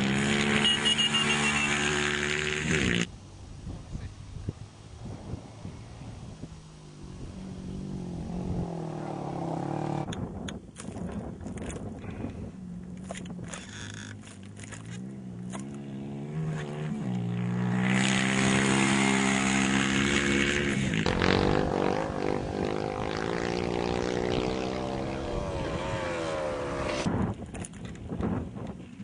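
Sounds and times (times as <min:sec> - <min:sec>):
motorcycle engine revving: 0:00.0 - 0:03.1, 0:05.0 - 0:10.2, 0:12.5 - 0:27.1.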